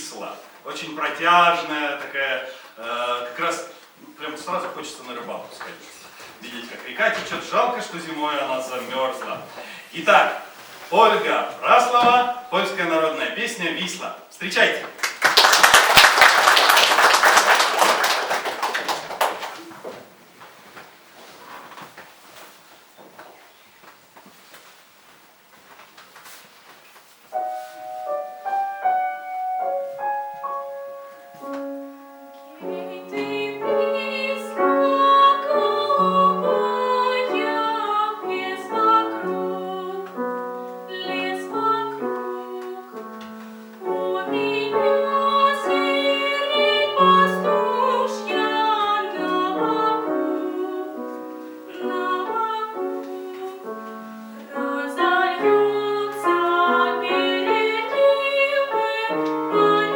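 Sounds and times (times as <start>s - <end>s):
piano playing: 27.3s - 59.9s
woman singing folk song: 32.5s - 40.3s, 40.9s - 43.0s, 43.8s - 53.7s, 54.4s - 59.9s.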